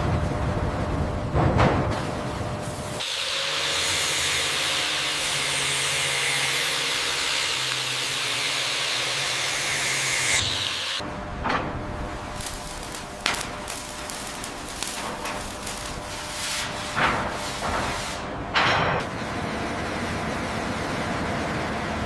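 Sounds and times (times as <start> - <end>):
loud steady hiss: 2.8 - 11.0, 12.3 - 17.0.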